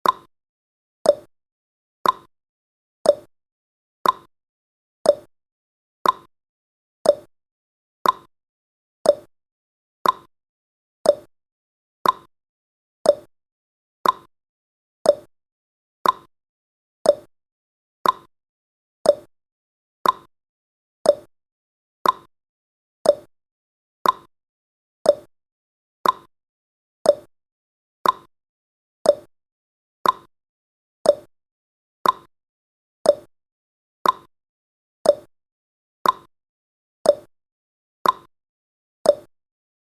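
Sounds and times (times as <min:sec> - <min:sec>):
clock ticking: 0:02.0 - 0:02.3, 0:04.0 - 0:04.3, 0:06.0 - 0:06.3, 0:08.0 - 0:08.3, 0:10.0 - 0:10.3, 0:12.0 - 0:12.3, 0:14.0 - 0:14.3, 0:18.0 - 0:18.3, 0:20.0 - 0:20.3, 0:22.0 - 0:22.3, 0:24.0 - 0:24.3, 0:26.0 - 0:26.3, 0:28.0 - 0:28.3, 0:29.1 - 0:29.3, 0:30.0 - 0:30.3, 0:31.1 - 0:31.3, 0:32.0 - 0:32.3, 0:33.1 - 0:33.3, 0:34.0 - 0:34.3, 0:35.1 - 0:35.3, 0:36.0 - 0:36.3, 0:38.0 - 0:38.3, 0:39.1 - 0:39.3.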